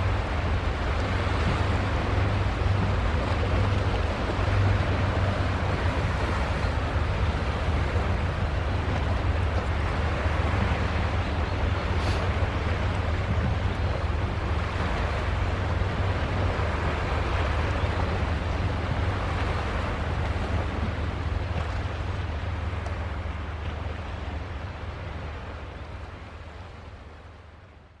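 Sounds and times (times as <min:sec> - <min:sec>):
waves washing: 0:00.0 - 0:27.7
ship engine rumble: 0:00.0 - 0:28.0.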